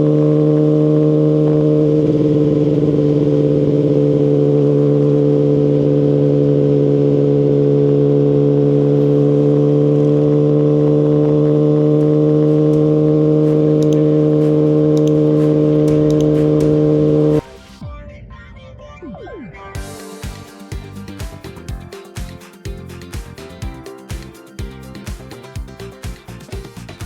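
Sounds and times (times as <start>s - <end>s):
motorcycle engine running steadily: 0.0s - 17.4s.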